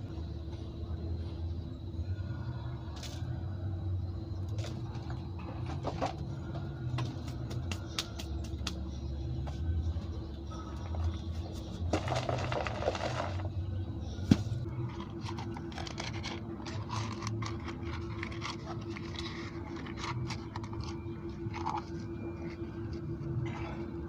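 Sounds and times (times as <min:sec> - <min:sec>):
steady low hum: 0:00.0 - 0:24.0
handling scraping and rustling: 0:14.4 - 0:23.0.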